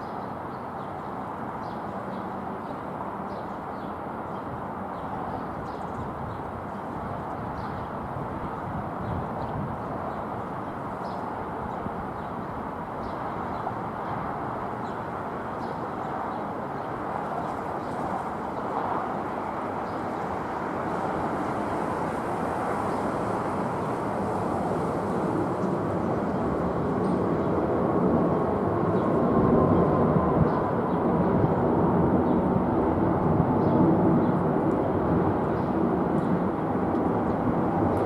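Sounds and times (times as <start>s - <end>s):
distant jet engines rumbling: 8.0s - 38.0s.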